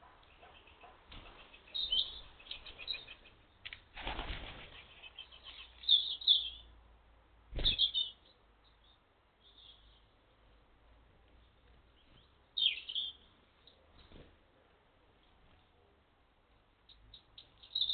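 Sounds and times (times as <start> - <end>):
high bird chirps: 0.4 - 3.4, 4.8 - 6.7, 7.6 - 10.0, 12.0 - 13.2, 16.9 - 17.9
bird wings flapping: 3.9 - 4.9.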